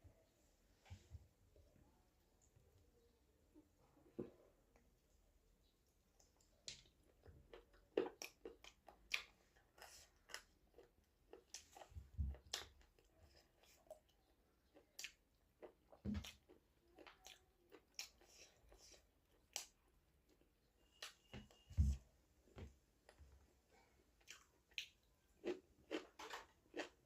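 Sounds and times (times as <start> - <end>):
person chewing: 6.2 - 21.6, 24.2 - 27.0.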